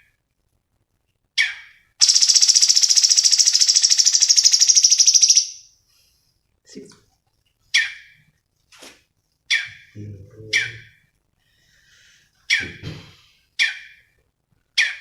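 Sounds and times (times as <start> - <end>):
songbird calling sharp notes: 1.4 - 5.7.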